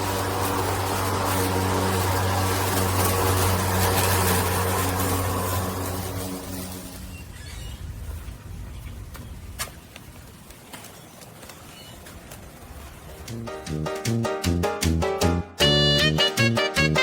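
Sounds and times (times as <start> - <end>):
electric lawn mower humming: 0.0 - 7.3.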